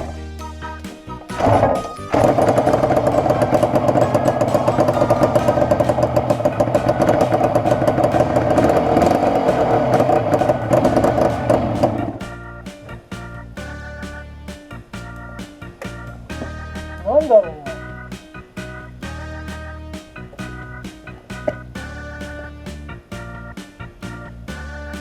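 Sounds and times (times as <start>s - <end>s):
two-stroke engine running: 1.4s - 12.2s.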